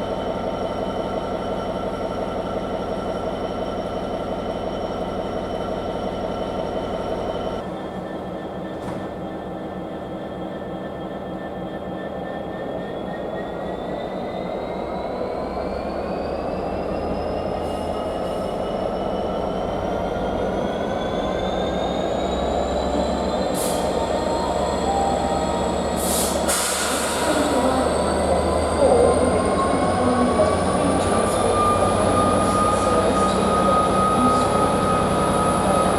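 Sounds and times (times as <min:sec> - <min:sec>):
diesel locomotive whine and rumble: 0:00.0 - 0:35.9.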